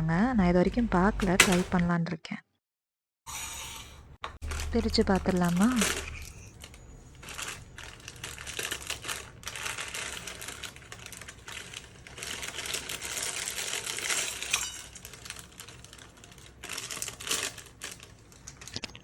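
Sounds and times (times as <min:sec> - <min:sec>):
plastic wrapper crinkling: 0:04.4 - 0:19.0.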